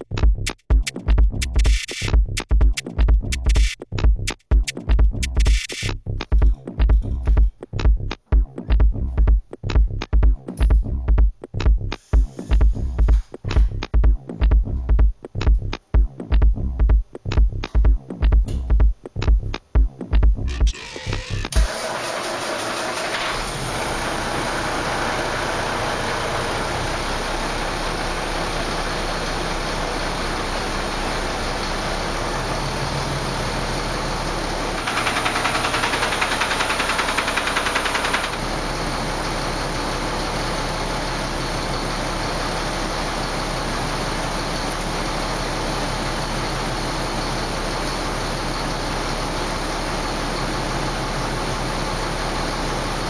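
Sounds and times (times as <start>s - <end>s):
diesel truck engine idling: 21.5s - 53.0s.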